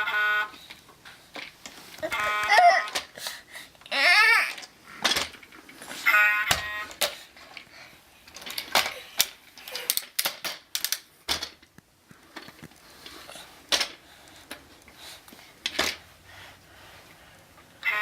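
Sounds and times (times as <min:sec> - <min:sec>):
toy truck clacks and knocks: 0:08.3 - 0:12.8, 0:13.7 - 0:14.6.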